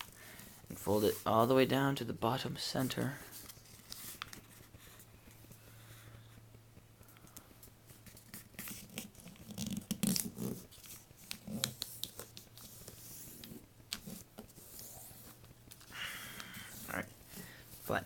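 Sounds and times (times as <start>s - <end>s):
paper crinkling: 3.2s - 5.4s.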